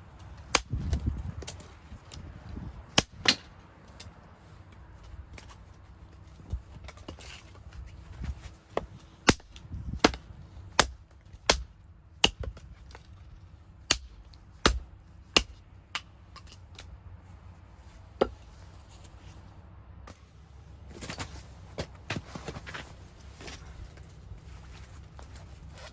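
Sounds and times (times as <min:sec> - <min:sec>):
firewood being chopped: 0:00.2 - 0:04.0, 0:08.2 - 0:13.2, 0:13.8 - 0:16.9, 0:18.2 - 0:18.5.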